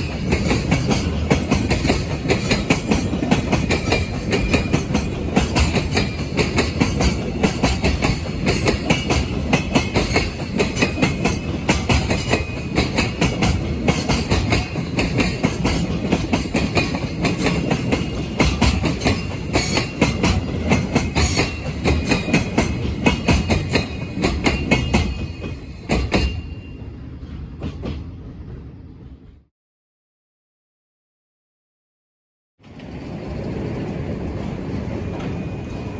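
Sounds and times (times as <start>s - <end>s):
wheels clattering over rail joints: 0.0s - 26.5s
freight train wagons rolling: 0.0s - 29.3s, 32.6s - 35.9s.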